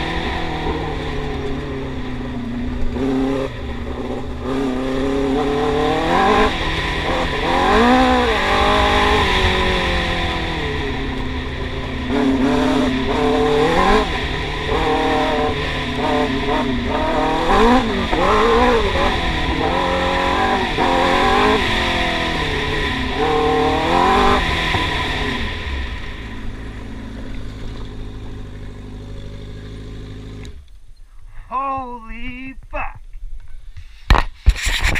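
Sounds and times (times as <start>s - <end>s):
quad engine revving hard: 2.9s - 11.1s, 12.0s - 26.1s.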